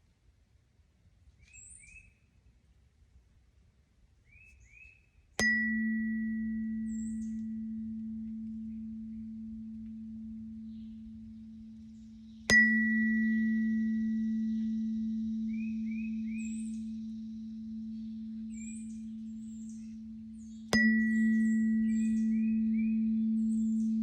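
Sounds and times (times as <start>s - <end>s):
faint bird chirps: 1.4s - 2.4s, 4.2s - 24.0s
tuning fork ringing: 5.4s - 24.0s.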